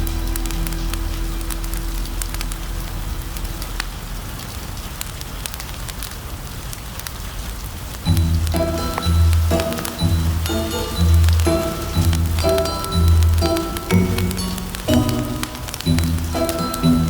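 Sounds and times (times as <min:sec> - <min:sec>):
low sustained music note: 0:00.0 - 0:04.0
fireplace crackling and popping: 0:00.0 - 0:17.0
rain hissing: 0:00.0 - 0:17.0.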